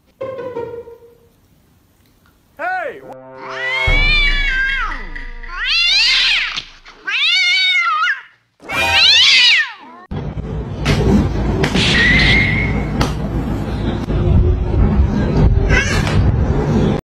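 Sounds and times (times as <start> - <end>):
cat yowling: 3.4 - 10.1.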